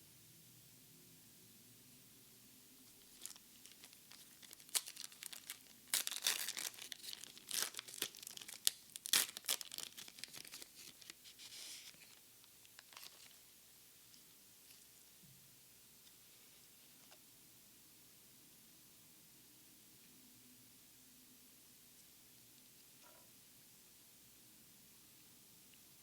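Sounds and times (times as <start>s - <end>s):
foil wrapper tearing and crinkling: 3.0s - 13.4s.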